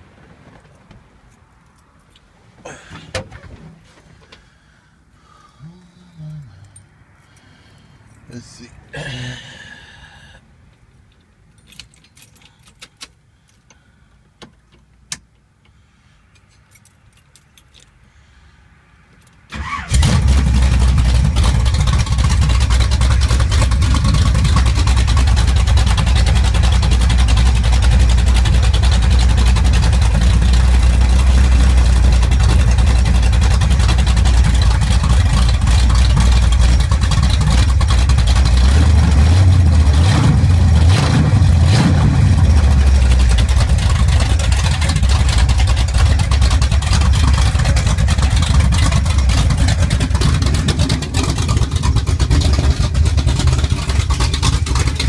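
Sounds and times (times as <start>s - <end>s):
car engine starting and running: 16.4s - 55.0s.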